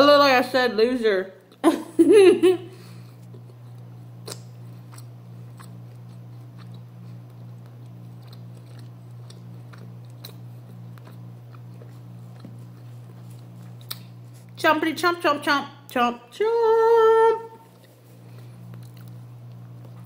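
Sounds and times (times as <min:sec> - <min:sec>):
steady low hum: 0:00.0 - 0:20.0
person chewing food: 0:03.1 - 0:14.6, 0:17.6 - 0:20.0.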